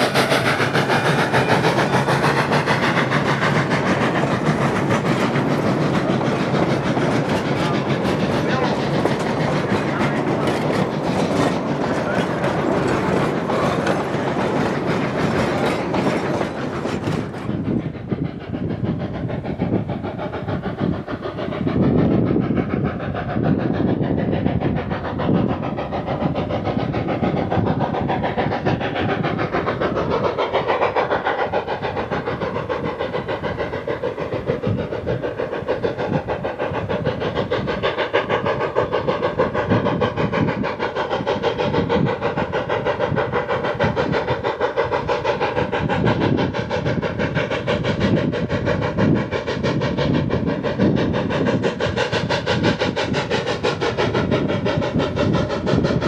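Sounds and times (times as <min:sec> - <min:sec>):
wheels clattering over rails: 0:00.0 - 0:17.8
steam train running: 0:00.0 - 0:56.0.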